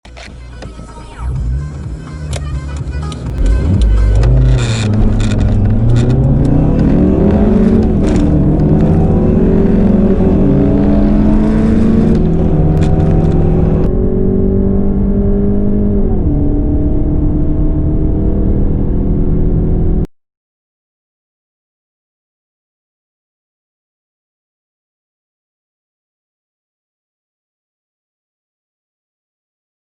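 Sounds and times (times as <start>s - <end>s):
car engines accelerating: 1.1s - 20.1s.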